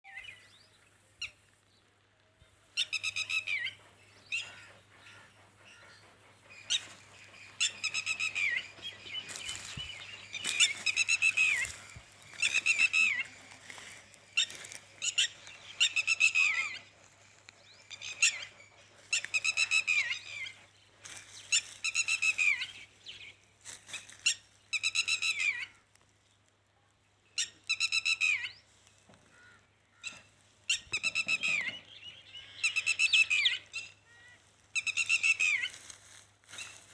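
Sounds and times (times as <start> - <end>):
harsh buzzy bird calls: 2.8 - 20.6.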